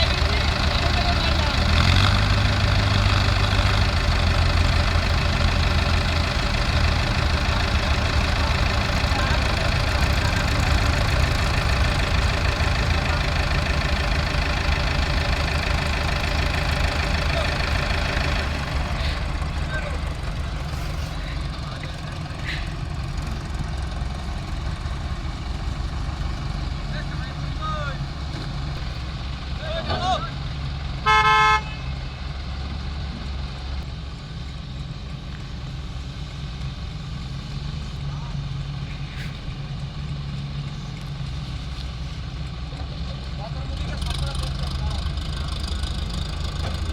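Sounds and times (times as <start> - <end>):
heavy diesel engine running: 0.0 - 46.9
horn toot: 31.0 - 32.0.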